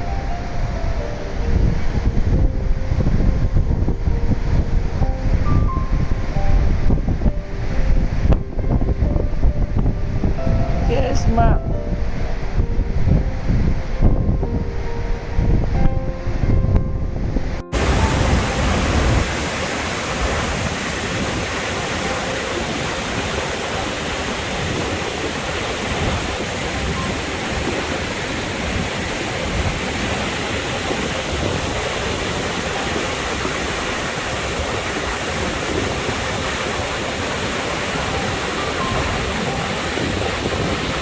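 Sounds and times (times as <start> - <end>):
waterfall rushing: 17.7 - 41.0.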